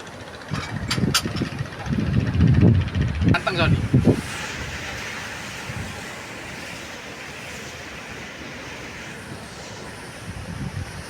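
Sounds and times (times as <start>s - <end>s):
wind: 0.0s - 11.0s
wind bumps on microphone: 0.5s - 11.0s
sea surf: 3.3s - 11.0s.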